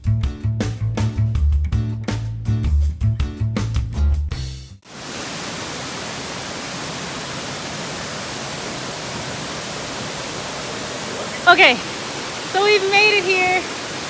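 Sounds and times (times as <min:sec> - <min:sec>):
waterfall rushing: 0:04.9 - 0:14.0.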